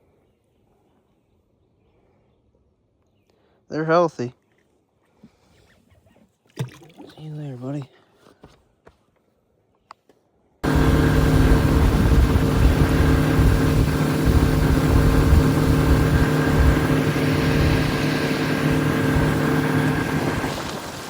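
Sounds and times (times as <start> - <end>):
outboard motor running: 10.6 - 21.0
wind rumble on microphone: 10.6 - 21.0.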